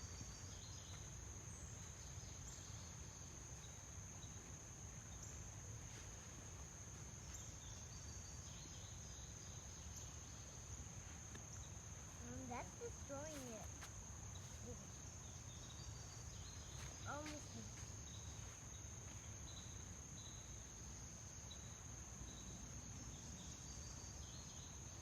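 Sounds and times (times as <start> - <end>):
insect trill: 0.0 - 25.0
faint chirps: 7.3 - 20.7.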